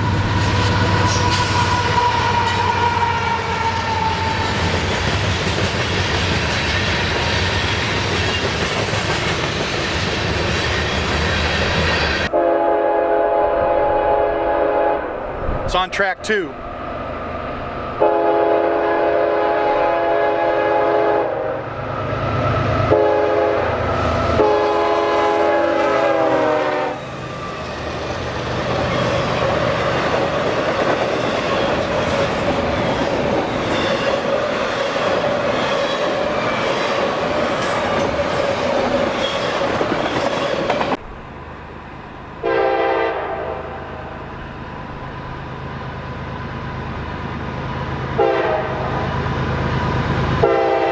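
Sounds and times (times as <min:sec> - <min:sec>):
train rolling by rumbling: 0:00.0 - 0:50.9
locomotive horn blasts: 0:12.3 - 0:15.3, 0:18.0 - 0:21.7, 0:22.8 - 0:27.0, 0:42.4 - 0:43.7, 0:48.2 - 0:49.0, 0:50.4 - 0:50.9.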